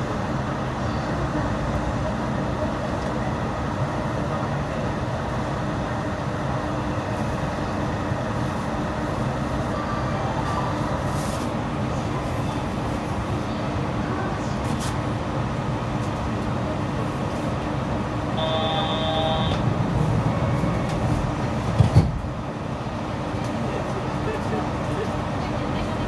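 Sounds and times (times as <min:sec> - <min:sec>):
automated train running: 0:00.0 - 0:26.0
brief electronic tone: 0:18.4 - 0:19.6.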